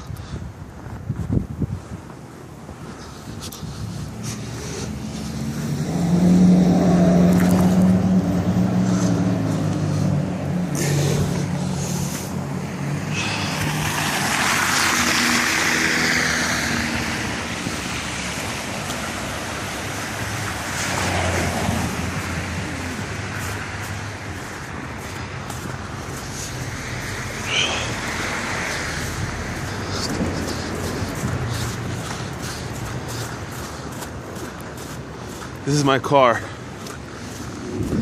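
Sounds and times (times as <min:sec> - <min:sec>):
low engine hum: 0:03.5 - 0:14.5
tyres hissing on snow: 0:10.8 - 0:17.0, 0:22.8 - 0:34.0.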